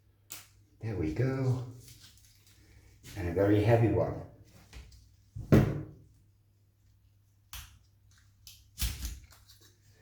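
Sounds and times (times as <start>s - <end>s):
flower pot thump: 5.4s - 6.0s.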